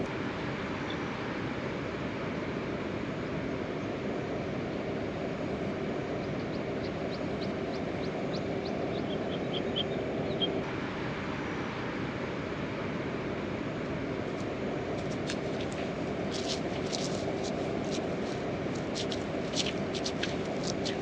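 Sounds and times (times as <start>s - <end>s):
bird chirping: 6.2s - 10.6s.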